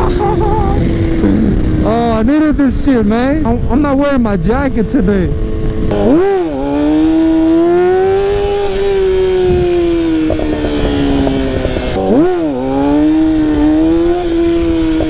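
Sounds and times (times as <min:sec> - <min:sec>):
wind rush: 0:00.0 - 0:12.0
motorcycle engine at high revs: 0:00.0 - 0:15.0.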